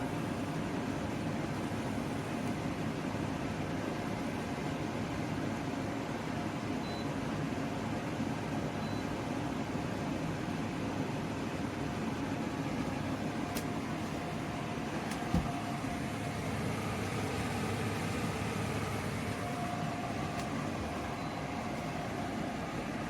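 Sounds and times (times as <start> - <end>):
air conditioner humming: 0.0 - 23.0
faint whine: 13.4 - 23.0
low thump: 15.3 - 15.6.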